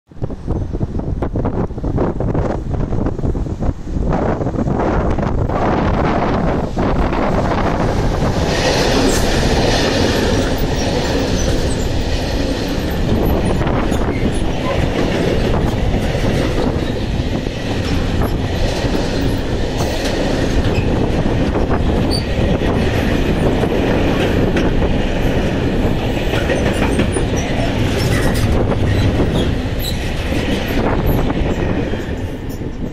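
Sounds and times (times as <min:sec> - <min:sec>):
freight train rumbling past: 0:00.1 - 0:32.9
wheels clattering over rail joints: 0:07.2 - 0:32.9
high wheel squeaks: 0:08.7 - 0:17.0, 0:22.0 - 0:22.4, 0:26.0 - 0:32.9.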